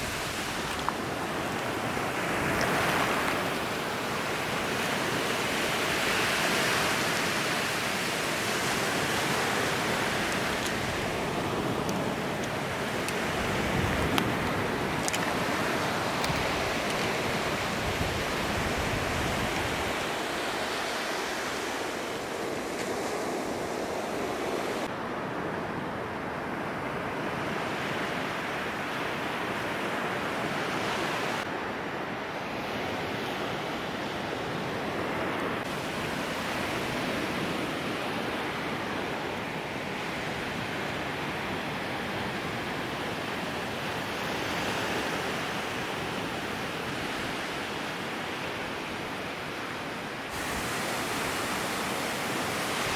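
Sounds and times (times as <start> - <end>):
waves breaking on beach: 0.0 - 52.9
wind buffeting microphone: 8.4 - 20.8.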